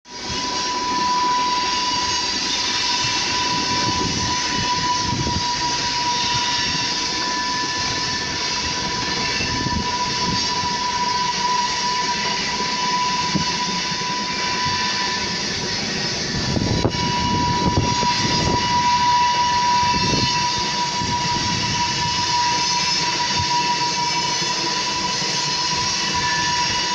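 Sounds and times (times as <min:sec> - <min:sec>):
rail vehicle rumbling: 0:00.1 - 0:26.9.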